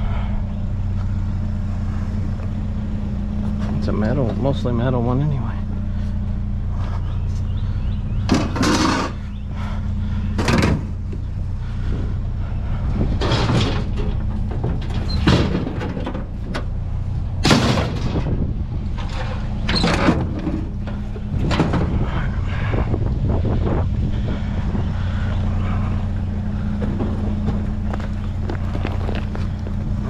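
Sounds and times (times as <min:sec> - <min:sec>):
vehicle engine idling: 0:00.0 - 0:30.0
loud knocks and scrapes: 0:08.3 - 0:09.2, 0:13.1 - 0:16.7, 0:17.4 - 0:18.4, 0:19.0 - 0:22.2.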